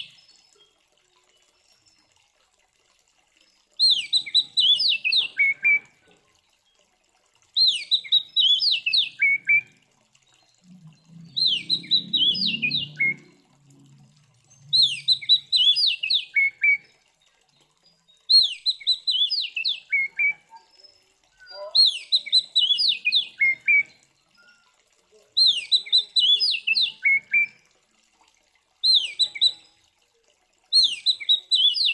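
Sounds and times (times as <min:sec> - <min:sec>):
bird singing whistled phrases: 0:03.8 - 0:05.9, 0:07.6 - 0:09.7, 0:11.2 - 0:13.3, 0:14.7 - 0:16.9, 0:18.3 - 0:24.7, 0:25.4 - 0:27.6, 0:28.8 - 0:29.8, 0:30.7 - 0:31.9.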